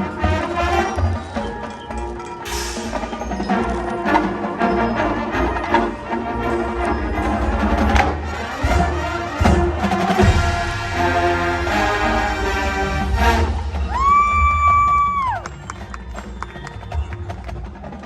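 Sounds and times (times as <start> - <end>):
marching band playing: 0.0 - 18.0
sharp percussion hits: 2.4 - 5.0, 7.2 - 15.6.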